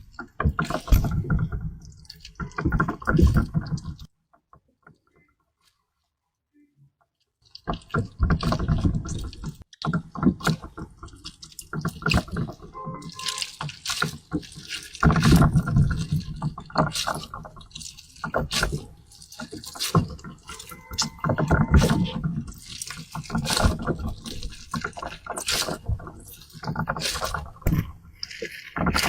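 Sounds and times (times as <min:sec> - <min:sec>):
wet squelches and drips: 0:00.0 - 0:06.2, 0:07.0 - 0:29.0.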